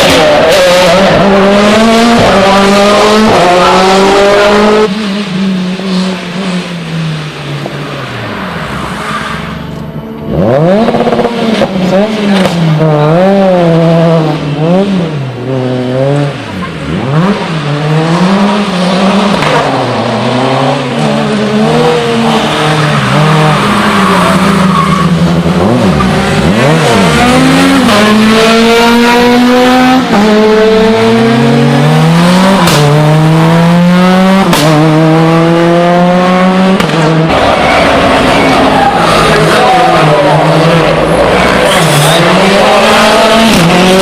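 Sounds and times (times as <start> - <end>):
rally car engine revving: 0.0 - 44.0.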